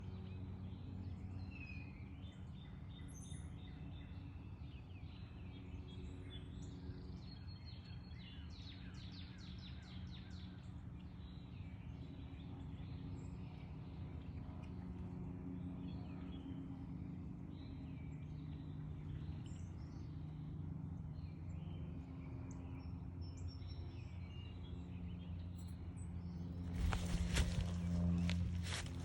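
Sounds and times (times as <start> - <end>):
low background hum: 0.0 - 29.0
small birds chirping: 23.2 - 29.0.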